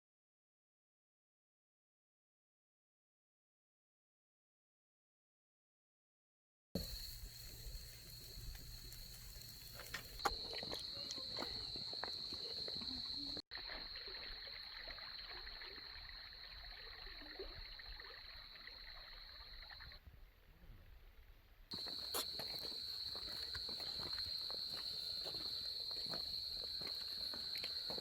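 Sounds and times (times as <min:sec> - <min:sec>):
crickets trilling: 0:06.8 - 0:20.0, 0:21.7 - 0:28.0.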